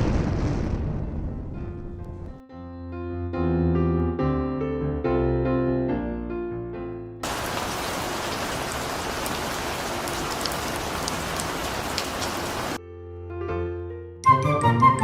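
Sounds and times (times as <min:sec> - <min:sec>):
music: 0:00.8 - 0:07.2, 0:12.8 - 0:15.0
steady rain: 0:07.2 - 0:12.8.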